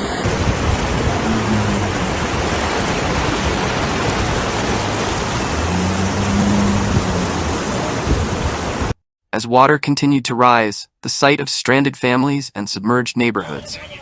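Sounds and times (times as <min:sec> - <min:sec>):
floodwater rushing: 0:00.0 - 0:09.0.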